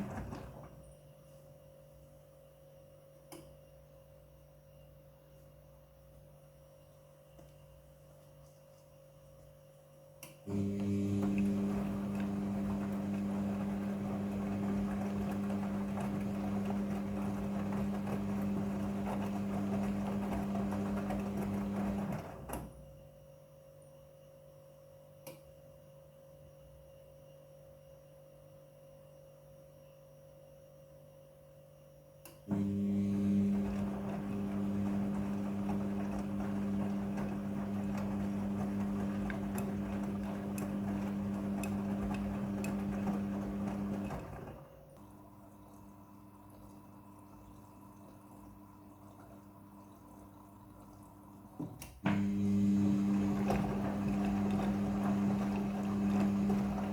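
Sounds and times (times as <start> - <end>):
washing machine motor humming: 0.0 - 1.0, 10.4 - 23.0, 32.4 - 56.9
click: 3.3 - 3.5, 10.2 - 10.9, 25.2 - 25.5, 32.2 - 32.5, 51.7 - 52.0.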